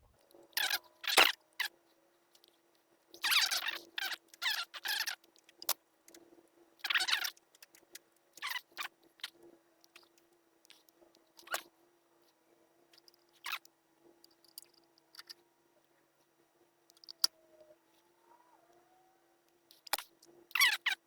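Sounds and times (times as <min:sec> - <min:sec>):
faint steady hum: 0:00.0 - 0:21.0
small clicks handling parts and wires: 0:00.2 - 0:06.2, 0:12.9 - 0:18.1, 0:18.7 - 0:21.0.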